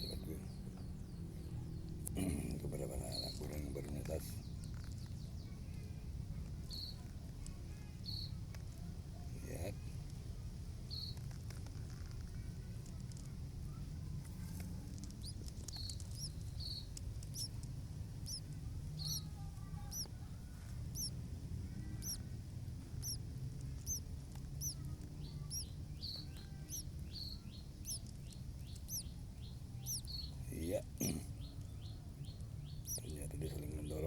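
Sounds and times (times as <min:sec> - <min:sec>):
steady low rumble: 0:08.7 - 0:34.0
nestlings cheeping: 0:14.4 - 0:34.0.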